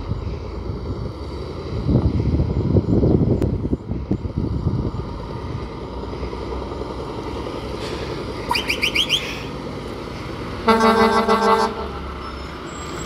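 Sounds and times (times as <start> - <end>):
truck engine droning: 0.0 - 13.0
short rising chirps: 8.5 - 9.4.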